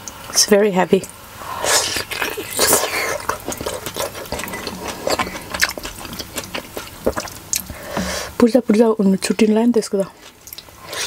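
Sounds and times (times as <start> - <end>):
person chewing food: 1.4 - 8.8, 10.0 - 11.0.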